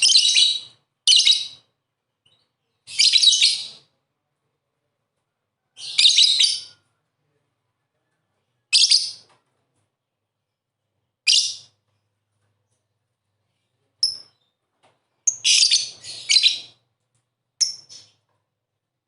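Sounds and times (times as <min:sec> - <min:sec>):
lovebird chirping: 0:00.0 - 0:01.6, 0:11.2 - 0:11.8, 0:14.0 - 0:14.6, 0:15.2 - 0:16.8, 0:17.6 - 0:18.2.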